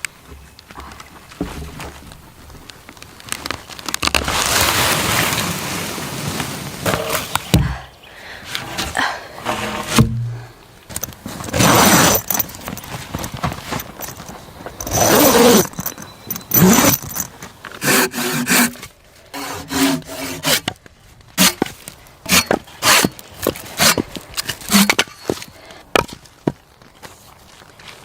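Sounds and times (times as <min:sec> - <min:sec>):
gear scraping and clinking: 0:09.5 - 0:20.8, 0:21.4 - 0:26.1.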